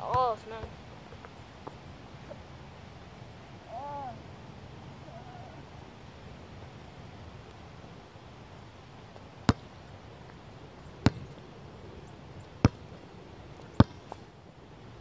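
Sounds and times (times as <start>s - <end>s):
basketball bouncing: 11.0s - 11.4s, 12.6s - 12.8s, 13.8s - 14.1s.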